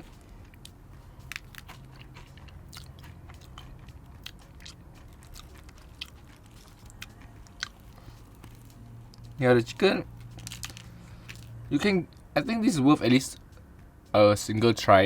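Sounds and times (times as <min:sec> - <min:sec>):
person chewing crunchy food: 0:00.0 - 0:09.3, 0:10.2 - 0:11.6.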